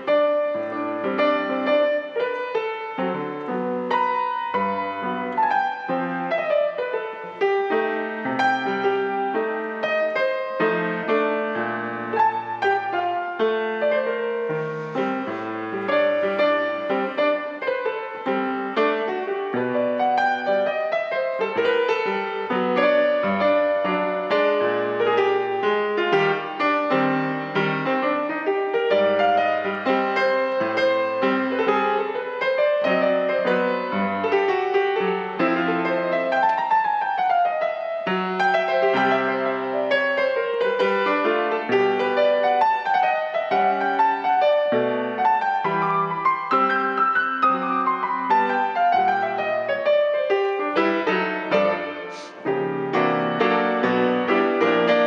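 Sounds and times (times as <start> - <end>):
solo piano jazz ballad: 0.0 - 55.0.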